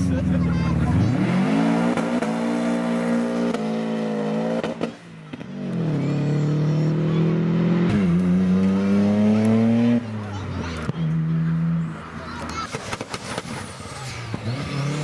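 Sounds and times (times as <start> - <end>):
sports car engine accelerating: 0.0 - 12.2.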